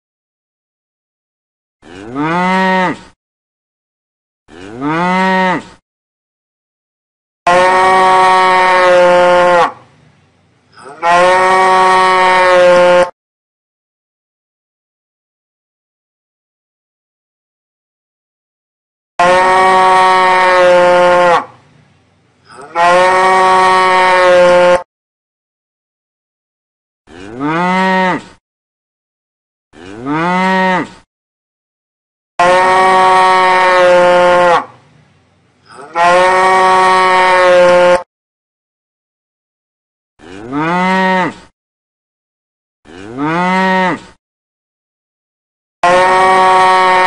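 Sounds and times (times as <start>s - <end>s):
cow mooing: 1.8s - 3.0s, 4.5s - 5.7s, 7.5s - 9.8s, 10.8s - 13.1s, 19.2s - 21.5s, 22.5s - 24.8s, 27.1s - 28.4s, 29.8s - 30.9s, 32.4s - 34.7s, 35.7s - 38.1s, 40.2s - 41.5s, 42.9s - 44.1s, 45.8s - 47.0s.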